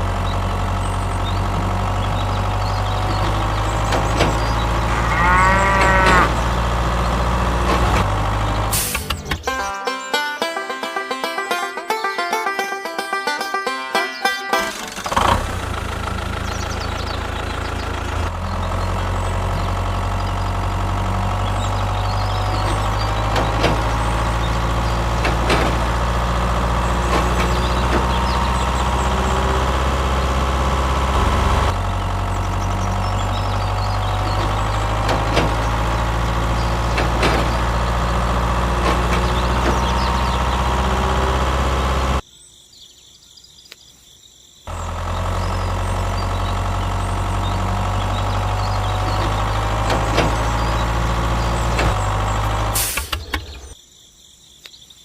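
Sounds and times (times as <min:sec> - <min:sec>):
tractor engine idling: 0:00.0 - 0:42.2, 0:44.7 - 0:53.8
sharp clicks: 0:52.7 - 0:53.8.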